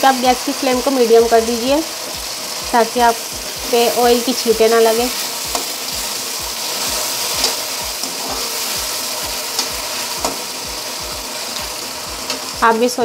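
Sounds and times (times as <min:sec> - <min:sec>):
vegetables sizzling in hot oil: 0:00.0 - 0:13.0
spatula scraping a pan: 0:06.5 - 0:10.5.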